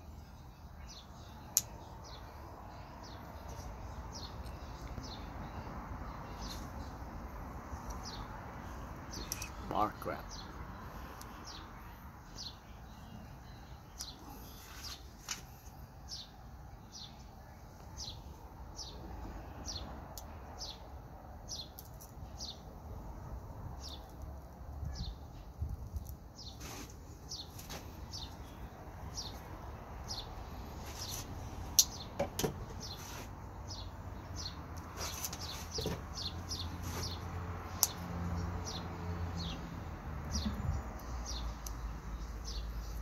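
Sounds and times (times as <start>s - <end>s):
small bird chirping: 9.1s - 11.7s, 40.3s - 43.0s.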